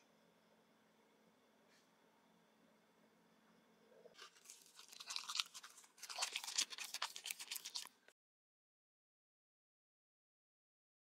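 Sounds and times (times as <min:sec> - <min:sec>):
crunchy biting and chewing: 0:04.2 - 0:08.1.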